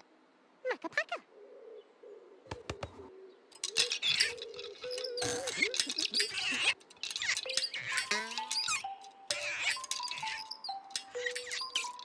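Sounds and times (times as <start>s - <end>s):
squeaky chirps and whistling glides: 3.6s - 12.0s.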